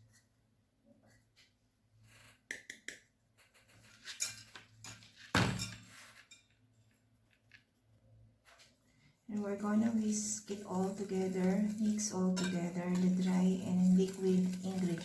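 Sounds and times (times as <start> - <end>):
kitchenware clinking on bowl: 4.1 - 6.5, 9.8 - 15.0.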